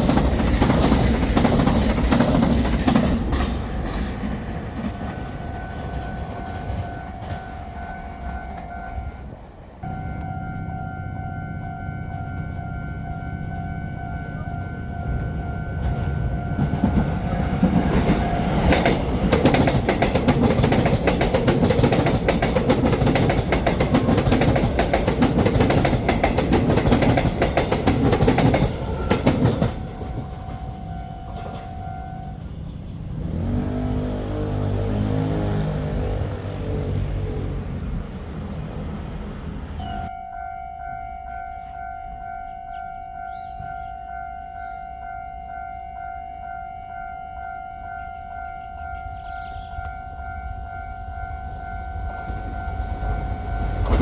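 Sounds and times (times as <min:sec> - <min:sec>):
wheel clatter over rails: 0:00.0 - 0:08.6, 0:15.9 - 0:38.4
train rushing past: 0:00.0 - 0:40.1, 0:47.5 - 0:54.0
steady high tone: 0:05.0 - 0:19.3.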